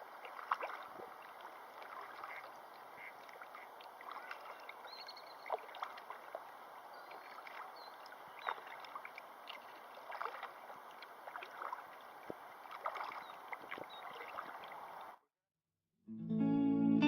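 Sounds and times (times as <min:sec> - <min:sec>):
river water flowing and splashing: 0:00.0 - 0:15.2
guitar music: 0:16.1 - 0:17.0.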